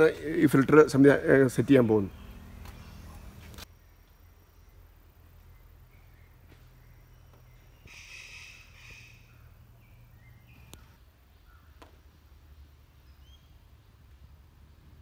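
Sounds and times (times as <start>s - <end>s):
low steady hum: 0.0s - 15.0s
bird rough call: 7.8s - 9.4s.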